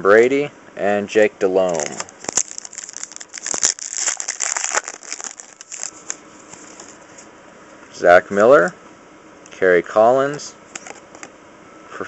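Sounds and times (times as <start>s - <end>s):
foil wrapper tearing and crinkling: 1.7s - 7.0s.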